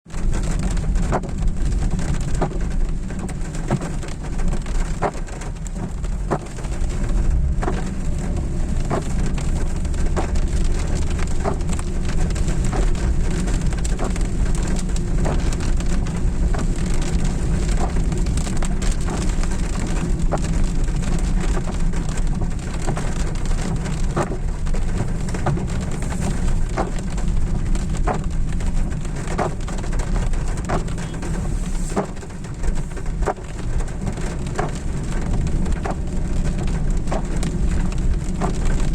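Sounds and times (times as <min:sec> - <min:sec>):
raindrops ticking on car: 0:00.0 - 0:38.9
road and engine rumble: 0:00.0 - 0:38.9.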